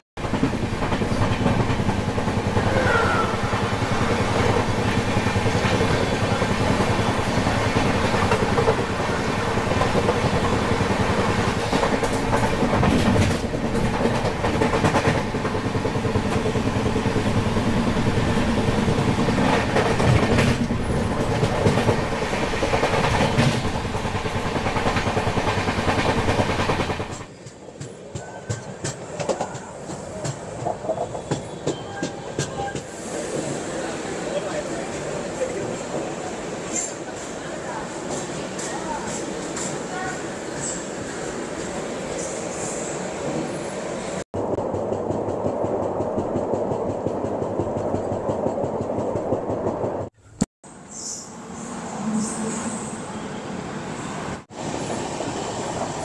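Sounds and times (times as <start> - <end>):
train wheels rumbling on rail: 0.2 - 50.2
clacks over rail joints: 9.6 - 16.6, 19.2 - 32.9, 44.5 - 50.2.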